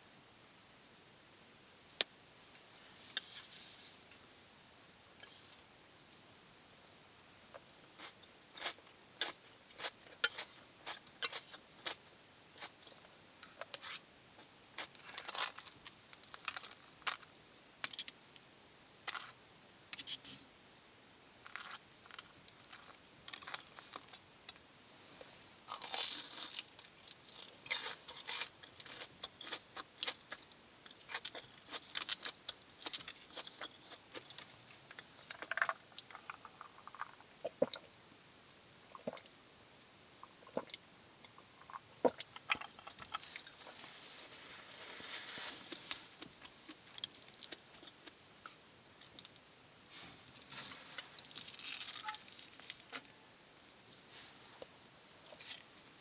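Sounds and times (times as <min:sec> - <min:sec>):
person chewing crunchy food: 0:08.0 - 0:12.0, 0:25.7 - 0:37.9, 0:38.9 - 0:39.3, 0:40.3 - 0:43.8.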